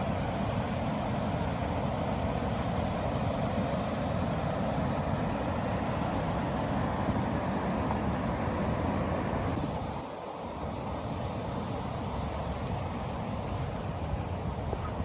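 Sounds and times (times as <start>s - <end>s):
river water rushing: 0.0s - 9.7s.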